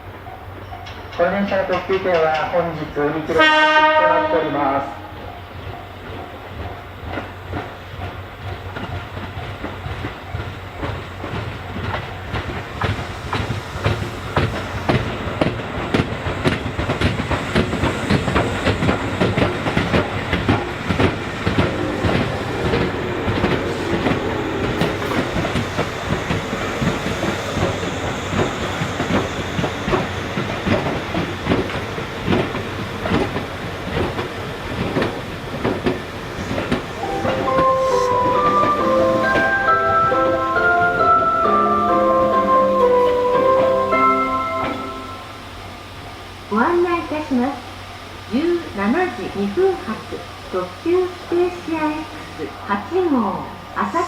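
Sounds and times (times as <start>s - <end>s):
train wheels clacking over rail joints: 0.7s - 3.7s, 5.6s - 39.6s.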